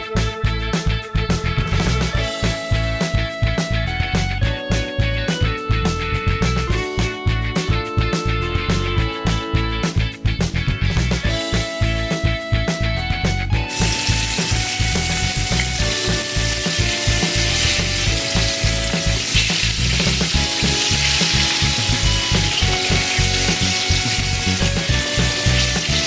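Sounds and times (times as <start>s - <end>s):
background music with steady beat: 0.0s - 26.0s
food sizzling in hot oil: 13.7s - 26.0s.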